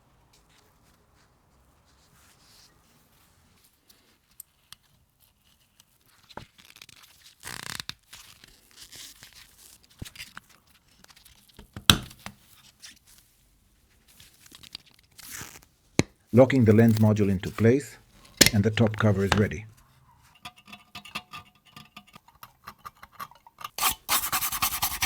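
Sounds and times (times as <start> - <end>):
scraping of small parts: 16.5 - 24.3.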